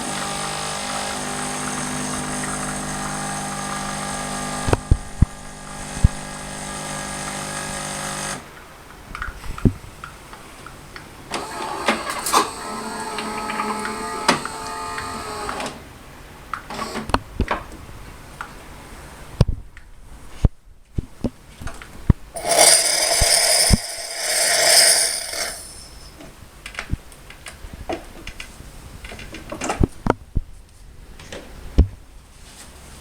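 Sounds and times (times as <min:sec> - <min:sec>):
coffee machine hissing: 0:00.0 - 0:08.4, 0:22.4 - 0:26.1
cups clinking: 0:22.4 - 0:26.2.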